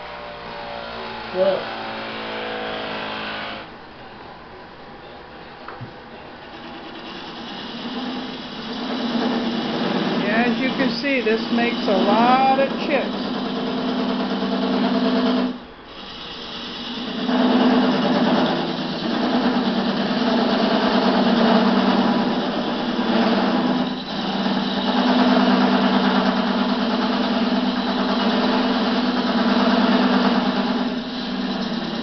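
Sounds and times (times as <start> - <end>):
chisel scraping wood: 6.4 - 12.4, 15.4 - 19.1, 29.8 - 32.0
wood lathe humming: 6.4 - 32.0.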